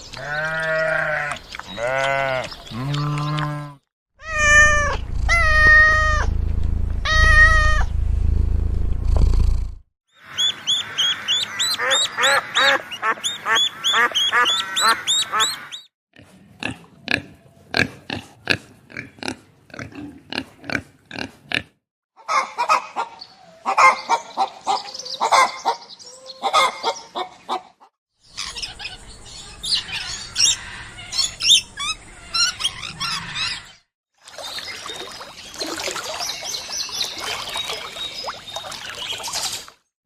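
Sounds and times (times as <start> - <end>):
farm animals calling: 0.1 - 6.3, 10.2 - 15.9, 22.2 - 27.8.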